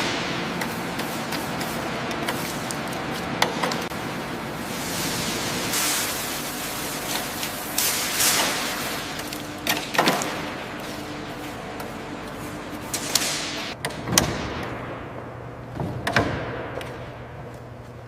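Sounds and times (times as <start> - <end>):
steady hissing noise: 0.0 - 13.8.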